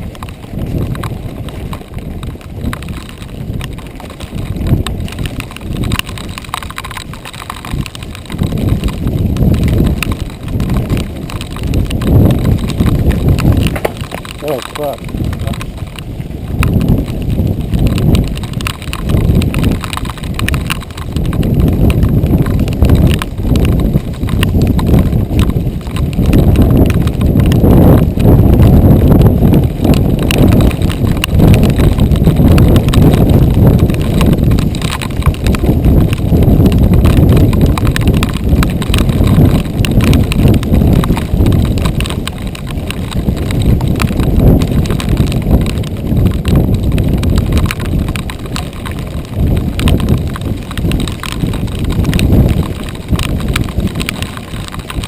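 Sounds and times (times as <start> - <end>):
bike rattling over dirt trail: 0.0 - 55.0.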